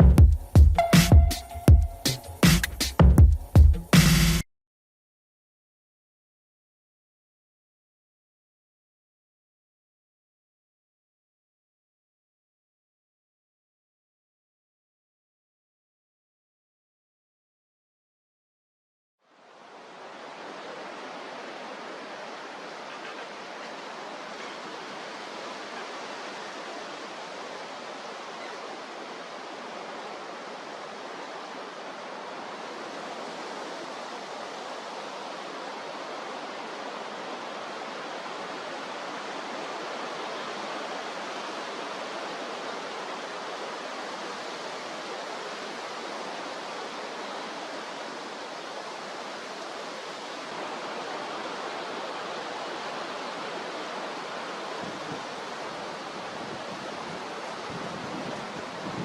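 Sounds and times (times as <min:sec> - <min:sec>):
rough sea: 0:19.2 - 0:59.0
strong wind: 0:19.7 - 0:59.0.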